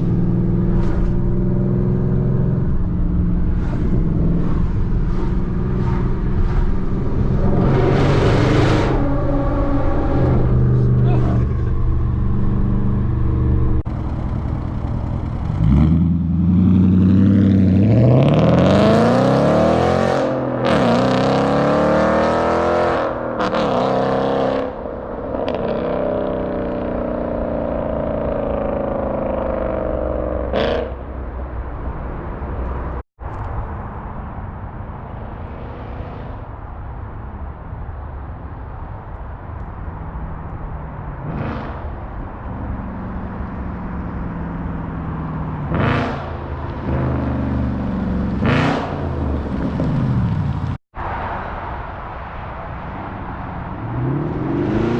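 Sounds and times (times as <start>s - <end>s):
car exhaust accelerating hard: 0.0s - 20.0s.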